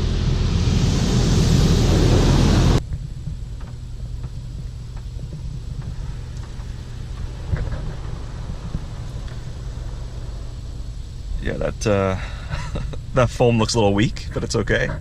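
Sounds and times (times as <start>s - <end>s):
car wash spray rushing: 0.0s - 2.8s
car idling hum: 0.0s - 15.0s.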